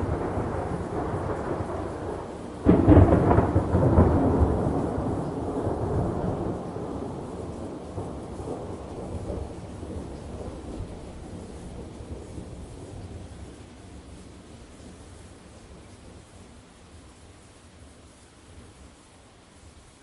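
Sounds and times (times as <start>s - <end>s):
loud thunderclap: 0.0s - 10.9s
rain: 0.0s - 20.0s.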